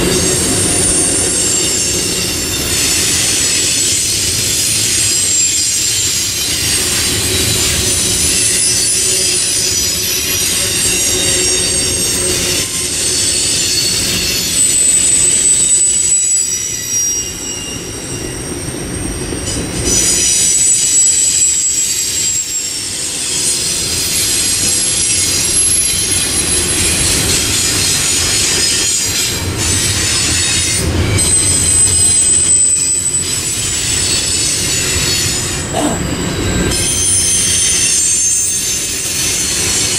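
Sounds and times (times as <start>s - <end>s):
freight train rumbling past: 0.0s - 39.9s
steel wheels squealing: 0.0s - 39.9s.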